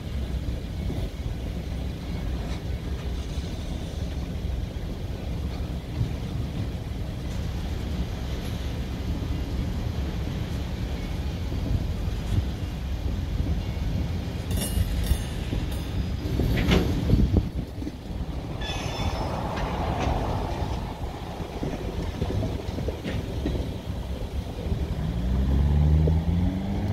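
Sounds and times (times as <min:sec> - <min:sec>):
train wheels rumbling on rails: 0:00.0 - 0:26.9
high-pitched wheel squeals: 0:18.4 - 0:21.7.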